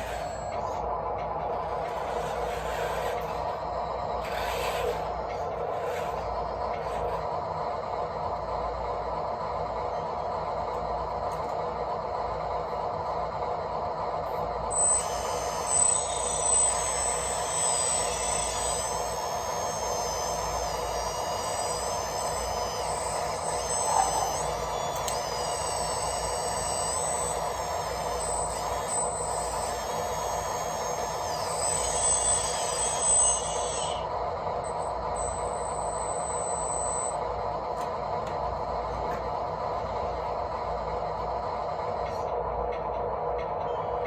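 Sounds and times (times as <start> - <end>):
electric motors whining: 0.0 - 11.8, 13.9 - 44.0
steady gear buzz: 14.7 - 37.2.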